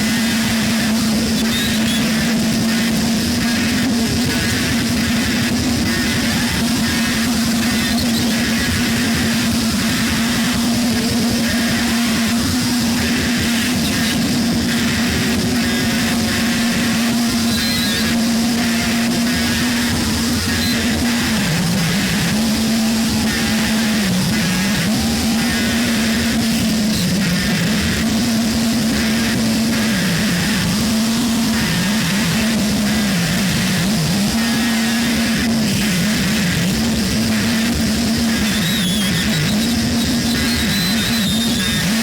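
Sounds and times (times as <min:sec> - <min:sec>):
crackling engine-like texture: 0:00.0 - 0:42.0
droning tone dipping in pitch: 0:00.0 - 0:42.0
harsh noise music: 0:00.0 - 0:42.0.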